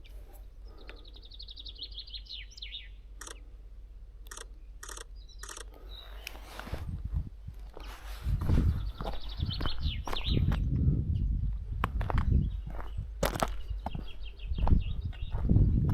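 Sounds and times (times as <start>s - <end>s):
songbird trilling: 0.8s - 3.4s, 4.3s - 6.6s
short scuffing noises: 6.3s - 7.0s, 11.8s - 14.8s.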